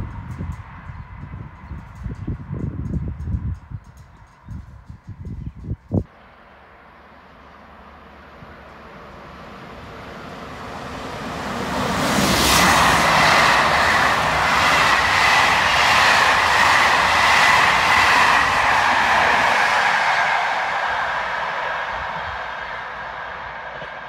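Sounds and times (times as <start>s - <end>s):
train passing at speed: 0.0s - 24.0s.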